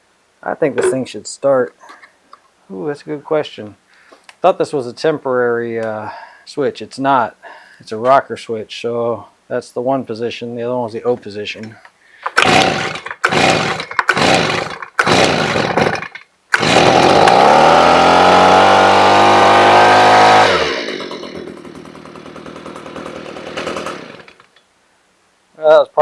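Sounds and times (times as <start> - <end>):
recoil starter tugs: 12.3 - 24.5
leaf blower engine running: 12.4 - 24.4.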